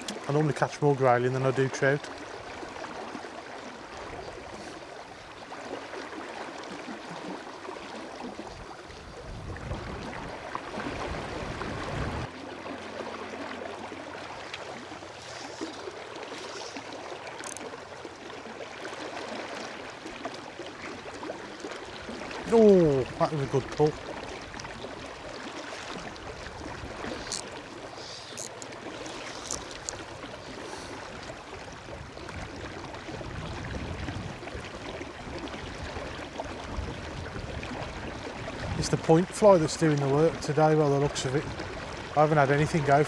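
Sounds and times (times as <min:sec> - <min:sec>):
river water running: 0:00.0 - 0:43.0
wind buffeting microphone: 0:08.5 - 0:12.3, 0:31.1 - 0:39.2.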